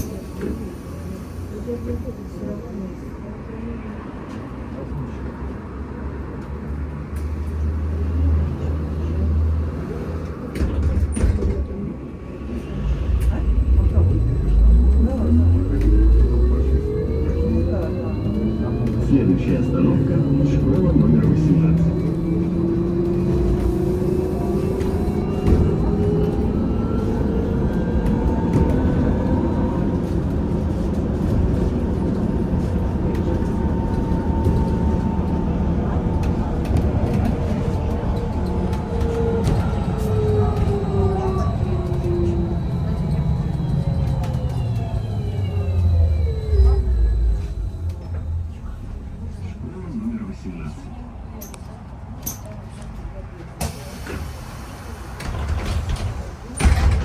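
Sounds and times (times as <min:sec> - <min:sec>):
trolleybus cabin rumble: 0:00.0 - 0:57.0
electric traction drive whine: 0:12.8 - 0:49.6.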